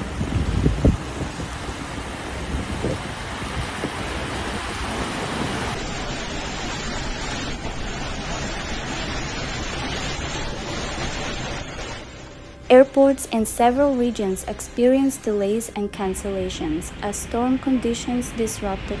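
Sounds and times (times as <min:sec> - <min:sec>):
wind thuds on microphone: 0:00.0 - 0:05.8
torrential rain: 0:00.0 - 0:19.0.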